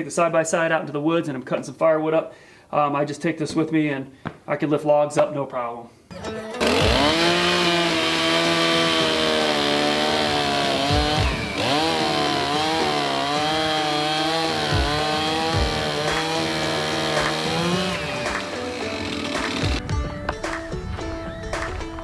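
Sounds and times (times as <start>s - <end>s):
chainsaw cutting log: 6.6s - 19.8s.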